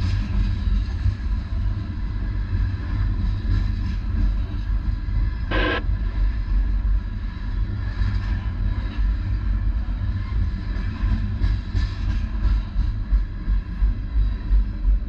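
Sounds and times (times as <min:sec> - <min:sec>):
train rumbling: 0:00.0 - 0:15.0
short burst of noise: 0:05.5 - 0:05.8.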